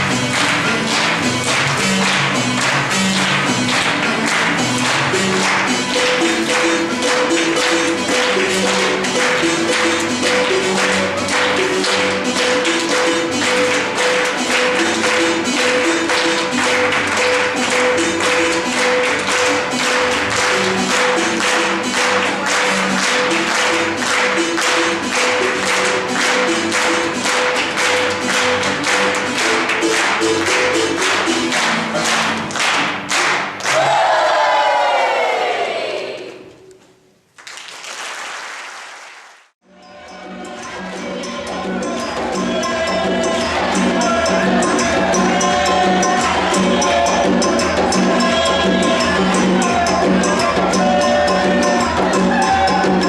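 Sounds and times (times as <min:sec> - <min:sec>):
held pitched melodic notes: 0:00.0 - 0:32.5
drums and shakers: 0:00.0 - 0:33.6, 0:40.4 - 0:53.0
percussion ensemble playing: 0:00.0 - 0:34.2, 0:39.6 - 0:53.0.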